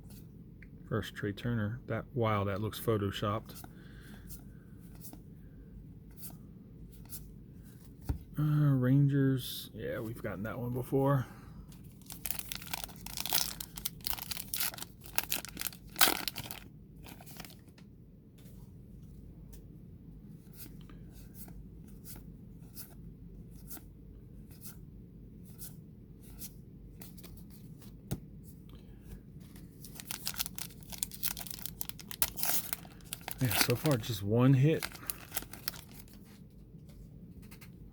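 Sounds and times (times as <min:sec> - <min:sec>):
wrapper tearing and crinkling: 0:12.0 - 0:17.6, 0:29.8 - 0:36.2.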